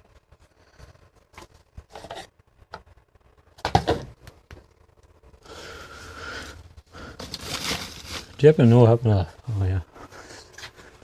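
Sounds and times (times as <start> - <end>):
objects knocking and clicking: 3.6 - 4.7.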